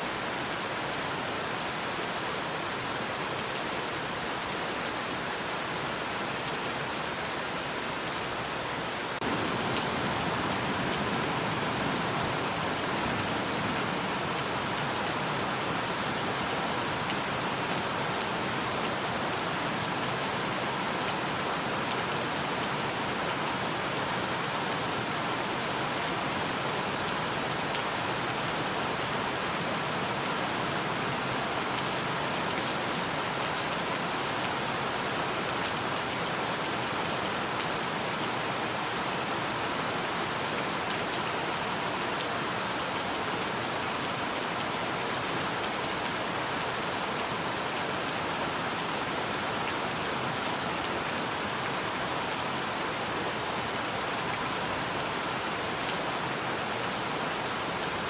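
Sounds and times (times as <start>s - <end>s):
rain pattering on surfaces: 6.4s - 20.2s.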